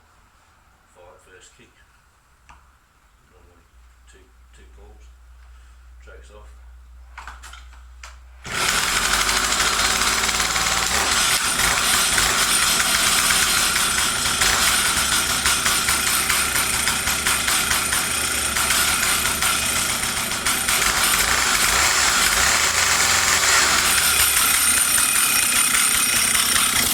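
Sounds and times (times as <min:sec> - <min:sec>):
two-stroke chainsaw running: 0:08.4 - 0:26.9.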